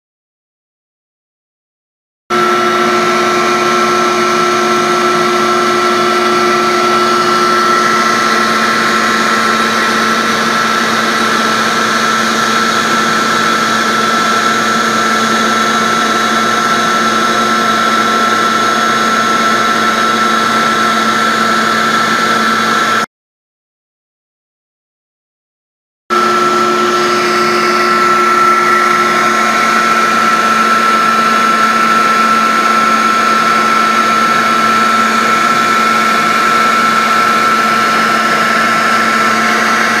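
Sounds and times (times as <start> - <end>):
lower hum: 2.3 - 23.0, 26.1 - 40.0
cnc router running: 2.3 - 23.1, 26.1 - 40.0
high whine: 2.3 - 23.1, 26.1 - 40.0.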